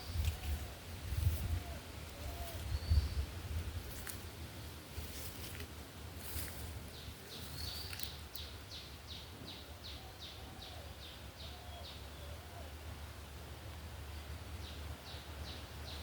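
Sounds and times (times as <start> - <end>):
low outdoor background rumble: 0.0 - 16.0.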